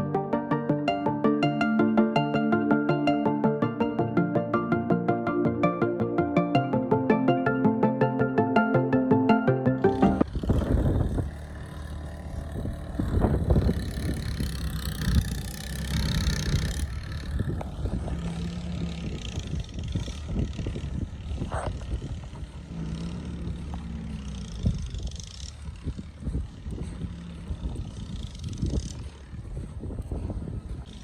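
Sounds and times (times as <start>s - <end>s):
vehicle engine and road noise: 10.2s - 31.0s.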